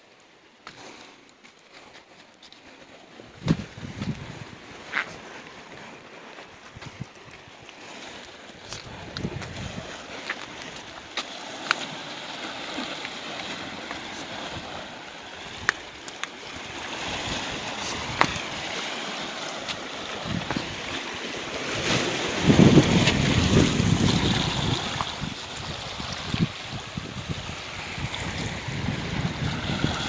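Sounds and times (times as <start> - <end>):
waves washing against rocks: 2.5 - 30.0
wind on microphone: 3.2 - 5.2, 6.6 - 7.6, 8.6 - 11.1, 13.5 - 18.8, 20.0 - 21.0, 21.6 - 30.0.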